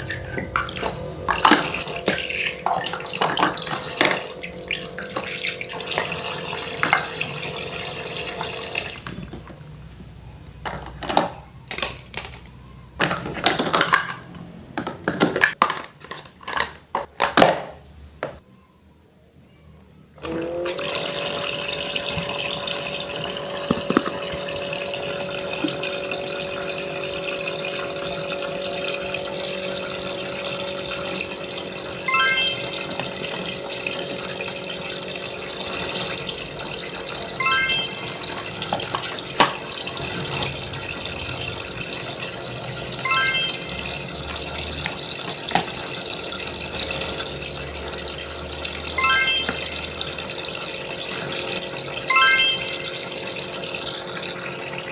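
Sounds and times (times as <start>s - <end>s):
water running from tap: 0.0s - 9.1s, 20.3s - 54.9s.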